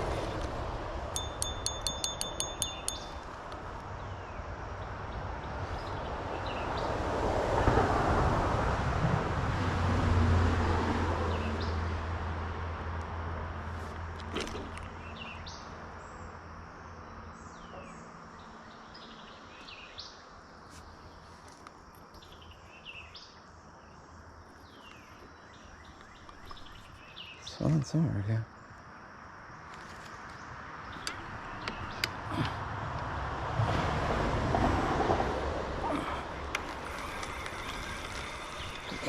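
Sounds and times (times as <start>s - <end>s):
small birds chirping: 1.2s - 6.8s, 14.9s - 32.6s, 35.8s - 39.0s.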